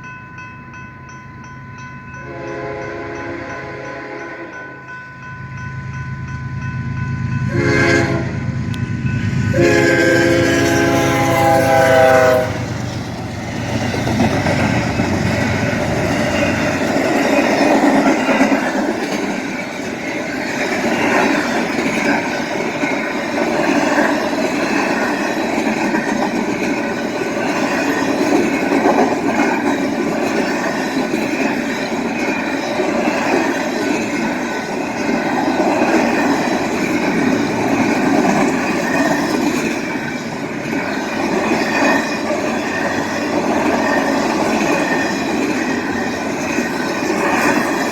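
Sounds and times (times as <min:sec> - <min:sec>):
train wheels on rails: 0:00.0 - 0:47.9
diesel locomotive rumble: 0:02.0 - 0:47.9
train horn blasts: 0:02.2 - 0:04.7, 0:07.5 - 0:08.8, 0:09.4 - 0:12.8.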